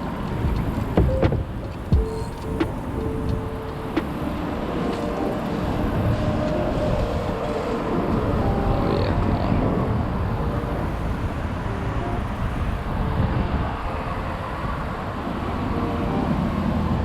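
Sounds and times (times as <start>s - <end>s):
outdoor rumble and hiss: 0.0s - 17.0s
high chirp: 1.1s - 5.7s.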